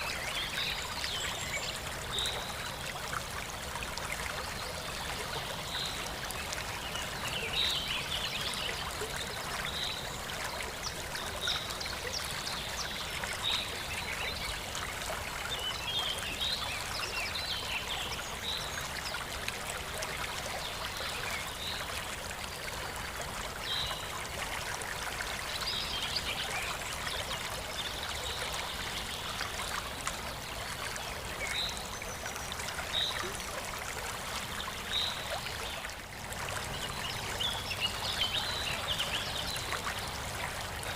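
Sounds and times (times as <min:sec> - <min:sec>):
trickling water: 0:00.0 - 0:40.9.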